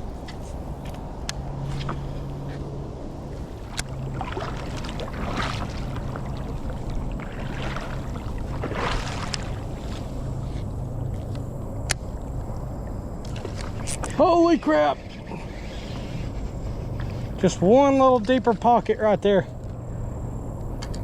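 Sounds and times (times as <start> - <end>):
creek water rushing: 1.0 - 19.2
water splashing: 3.1 - 11.4, 12.0 - 19.2.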